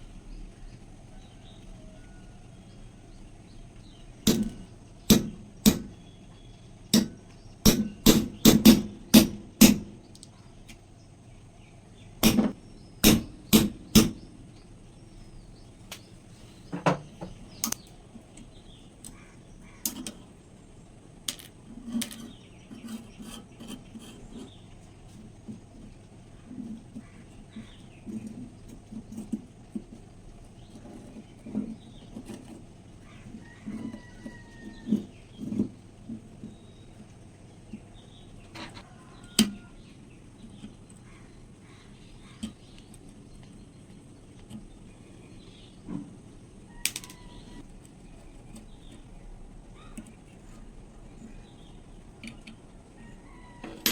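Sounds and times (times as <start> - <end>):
sharp knocks: 4.2 - 6.0, 7.0 - 10.0, 12.2 - 14.2
soft scraping handling sounds: 15.2 - 19.2, 21.3 - 46.2.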